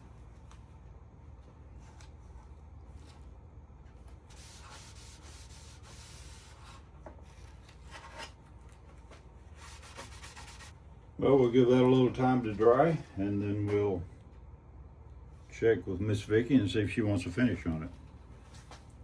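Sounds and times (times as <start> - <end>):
low steady hum: 0.0 - 19.0
cloth rubbing on wood: 4.3 - 6.8, 9.6 - 10.8.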